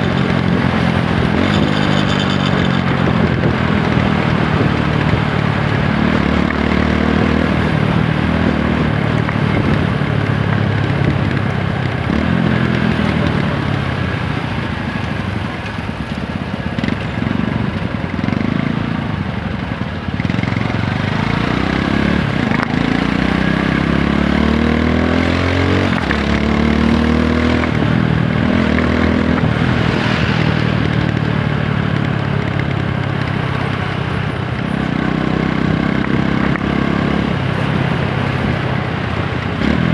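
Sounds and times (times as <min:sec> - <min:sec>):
motorcycle engine accelerating: 0:00.0 - 0:39.9
steady rushing noise: 0:25.7 - 0:34.0.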